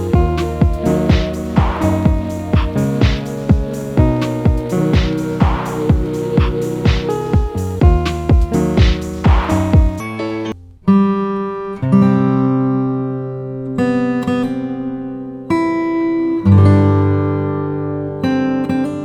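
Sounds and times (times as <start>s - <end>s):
drum beat: 0.0s - 10.0s
acoustic guitar strumming chords: 0.0s - 19.0s.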